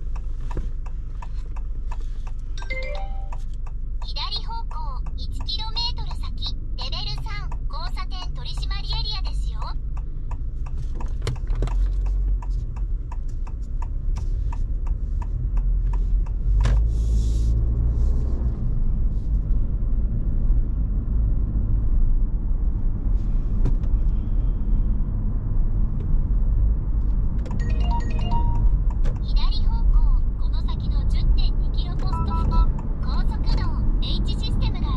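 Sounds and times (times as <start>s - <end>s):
turn signal ticking: 0.0s - 16.9s, 27.1s - 34.9s
car road and engine rumble: 0.0s - 34.9s
short electronic chime: 2.6s - 3.4s.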